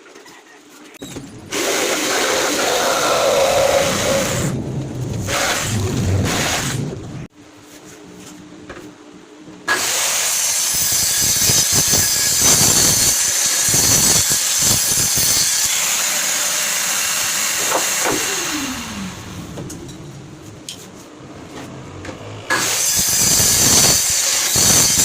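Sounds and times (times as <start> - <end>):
electric power tool running: 15.9 - 20.0, 21.8 - 25.0.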